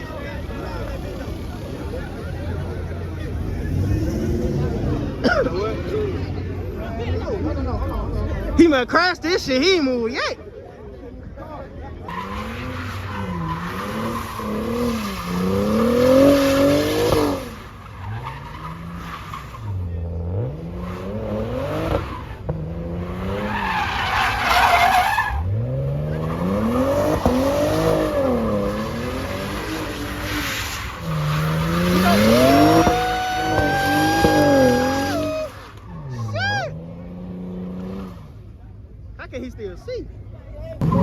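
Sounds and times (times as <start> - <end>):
car engine revving: 0.4 - 6.6, 12.1 - 38.7, 40.8 - 41.0
tires squealing: 11.9 - 38.7, 40.8 - 41.0.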